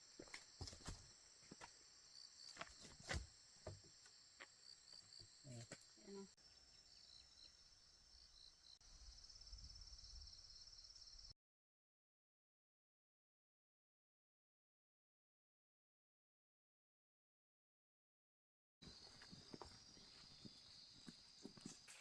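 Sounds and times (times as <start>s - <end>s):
insects chirping: 0.0s - 11.3s, 18.8s - 22.0s.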